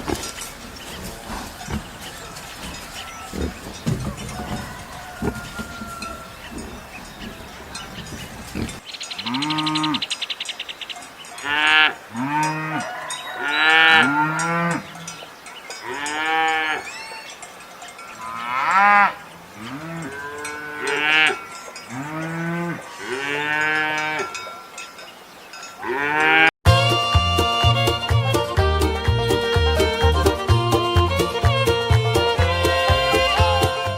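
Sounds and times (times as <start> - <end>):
livestock calling: 0.0 - 10.5, 11.4 - 17.4.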